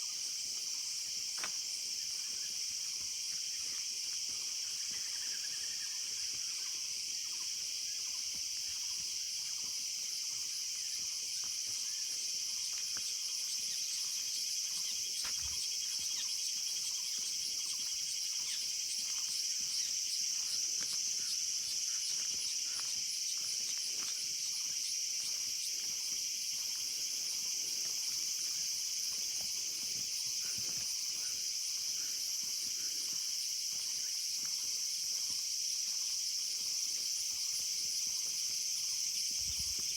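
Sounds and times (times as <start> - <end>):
rapid insect chirps: 0.0 - 39.9
high-pitched insect drone: 10.8 - 34.8.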